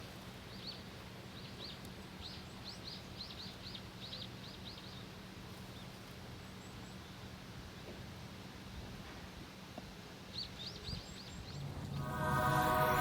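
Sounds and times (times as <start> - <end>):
small birds chirping: 0.0 - 8.0, 10.2 - 11.9
low steady hum: 11.3 - 13.0.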